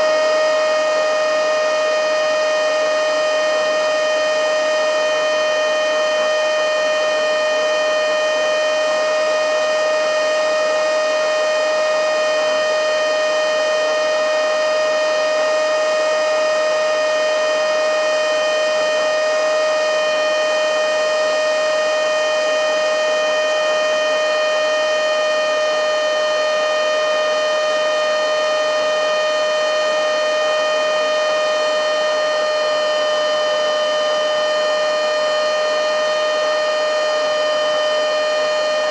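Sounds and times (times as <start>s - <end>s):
handheld vacuum motor whine: 0.0s - 38.9s.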